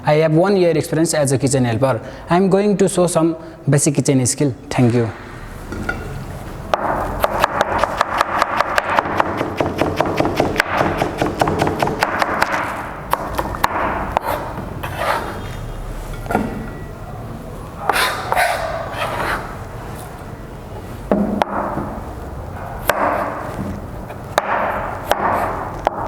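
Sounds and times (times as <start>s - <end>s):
knife chopping on cutting board: 6.8s - 14.5s, 22.8s - 23.5s, 24.4s - 26.0s.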